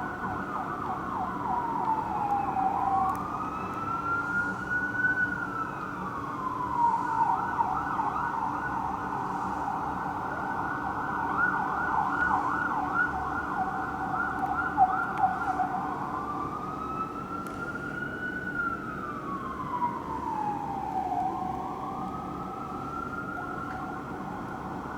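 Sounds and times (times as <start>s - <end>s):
fire engine siren wailing and yelping: 0.0s - 24.9s.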